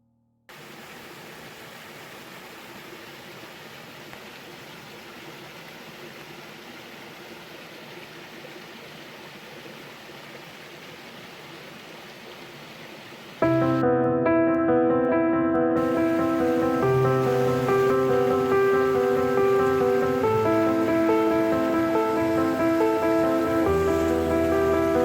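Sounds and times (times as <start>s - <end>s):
flowing water rushing: 0.5s - 13.8s, 15.8s - 25.0s
music with held notes: 13.4s - 25.0s.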